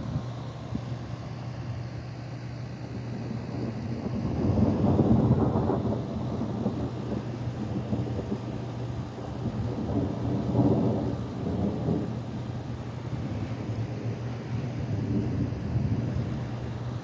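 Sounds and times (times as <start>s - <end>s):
rolling thunder rumbling: 3.4s - 16.8s.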